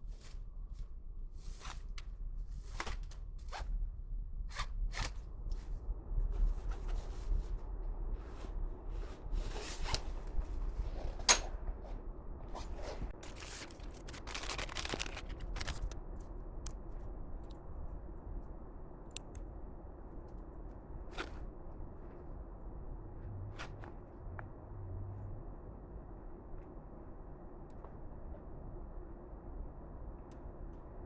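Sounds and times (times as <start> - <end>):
steady low hum: 0.0 - 31.0
handling clicks and scrapes: 9.4 - 16.0.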